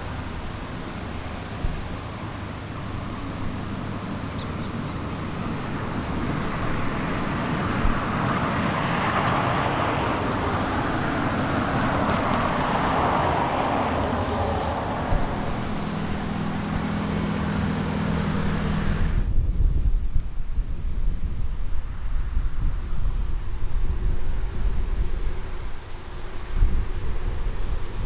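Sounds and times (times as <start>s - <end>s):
car passing by: 0.0s - 19.3s
steady low traffic rumble: 0.0s - 28.0s.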